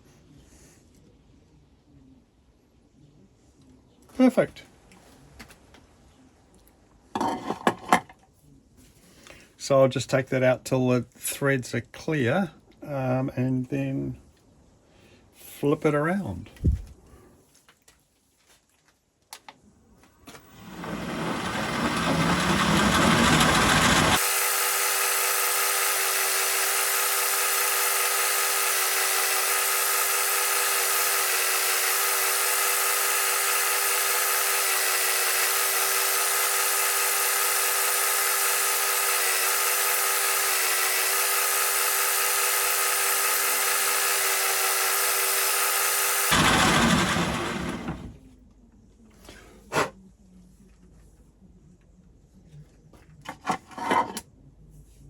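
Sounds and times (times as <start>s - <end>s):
metal lathe whining: 20.5s - 48.0s.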